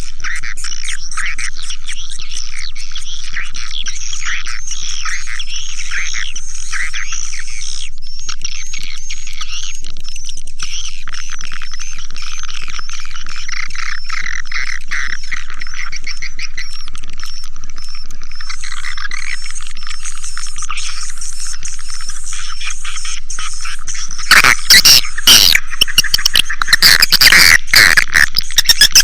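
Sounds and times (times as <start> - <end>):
swiftlets twittering: 0.6 - 29.0.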